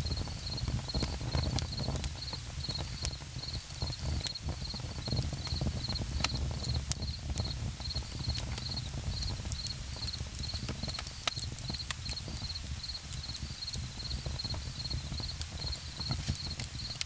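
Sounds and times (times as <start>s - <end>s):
insect chirping: 0.0s - 1.0s, 12.1s - 17.0s
campfire crackling: 0.0s - 17.0s.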